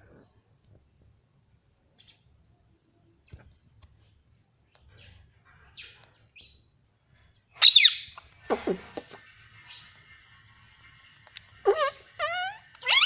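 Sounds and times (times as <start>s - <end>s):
parrot chirping: 7.6s - 10.4s, 11.5s - 13.0s
parrot harsh call: 11.6s - 13.0s.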